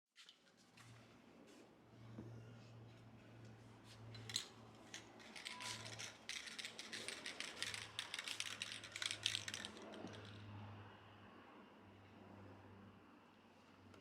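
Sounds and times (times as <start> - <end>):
objects clicking and rattling: 4.1 - 10.5.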